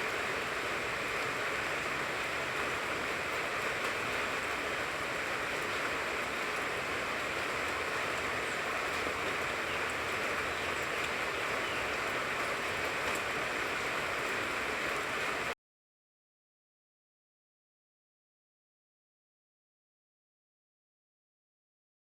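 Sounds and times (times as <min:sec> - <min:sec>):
rain falling on a tree: 0:00.0 - 0:15.6.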